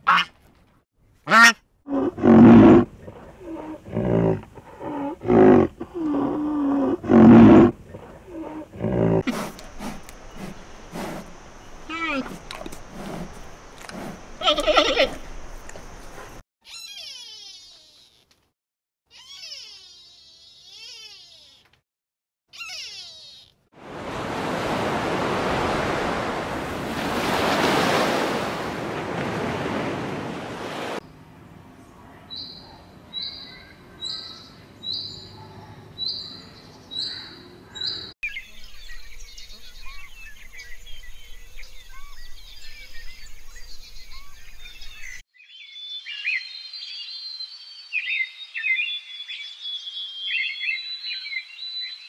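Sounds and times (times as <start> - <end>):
birds chirping: 7.6 - 16.4, 31.8 - 52.0
surf washing on beach: 23.8 - 31.0.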